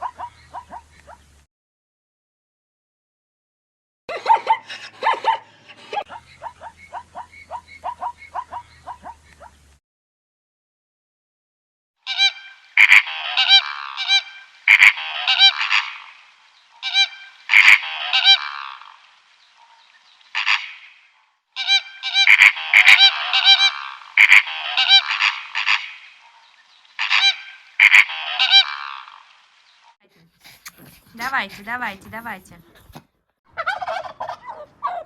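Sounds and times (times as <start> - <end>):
bird honking calls: 12.0 - 16.2, 16.8 - 18.9, 21.6 - 26.3, 26.9 - 29.2.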